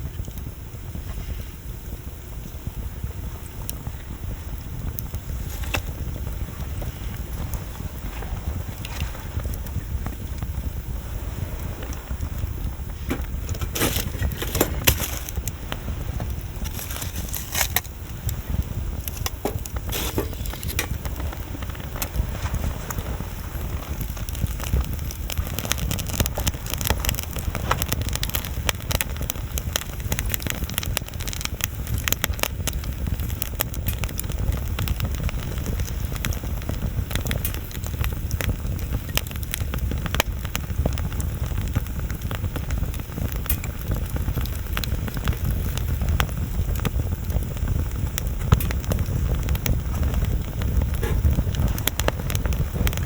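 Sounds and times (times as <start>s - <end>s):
bonfire crackling: 0.0s - 53.0s.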